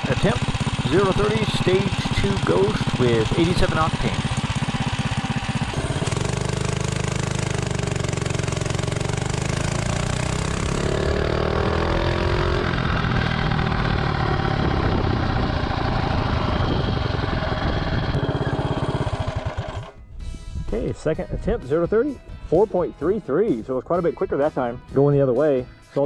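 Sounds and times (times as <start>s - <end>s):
mini bike engine accelerating: 0.0s - 20.0s.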